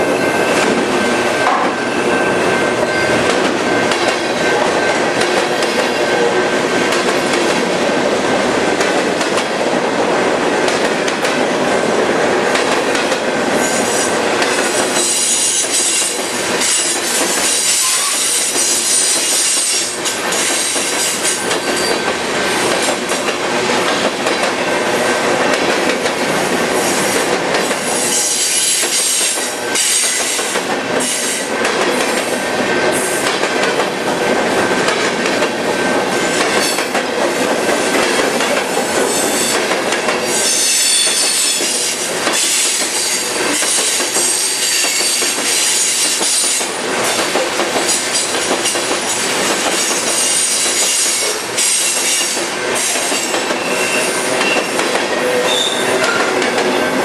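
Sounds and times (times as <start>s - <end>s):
train wheels clattering on rails: 0.0s - 57.0s
high-pitched wheel squeal: 55.4s - 56.2s.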